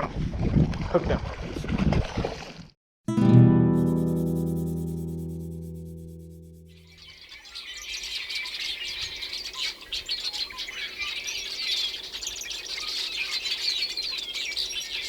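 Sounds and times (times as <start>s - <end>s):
small birds chirping and singing: 6.7s - 15.0s.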